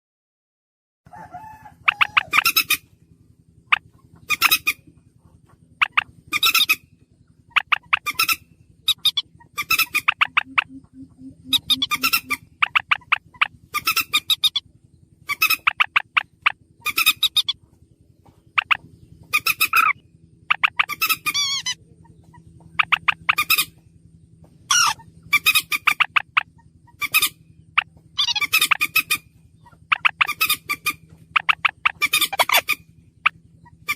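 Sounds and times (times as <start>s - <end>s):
bird calling with rattling clicks: 5.7s - 6.8s, 7.5s - 17.6s, 18.5s - 23.9s, 24.7s - 33.9s.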